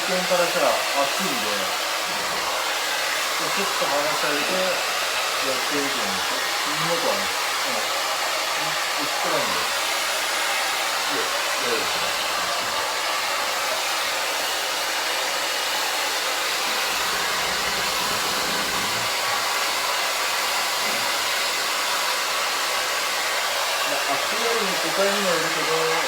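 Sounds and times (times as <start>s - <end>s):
hair dryer blowing: 0.0s - 26.0s.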